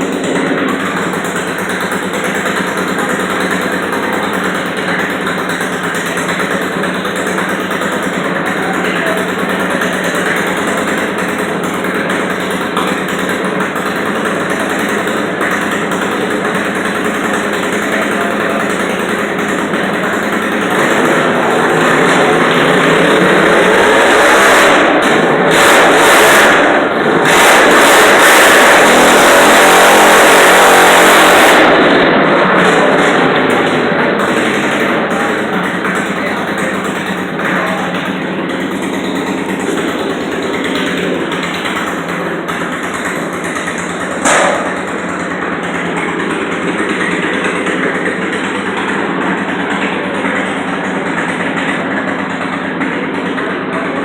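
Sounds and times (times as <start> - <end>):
tractor engine revving hard: 0.0 - 54.0
small engine revving hard: 20.7 - 33.9.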